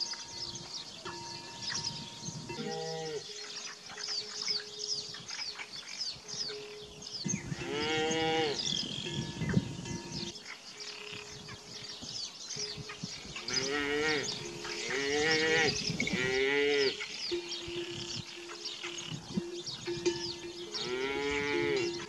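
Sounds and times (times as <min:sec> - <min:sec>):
small birds chirping: 0:00.0 - 0:22.0
cattle mooing: 0:13.5 - 0:17.0, 0:20.8 - 0:22.0.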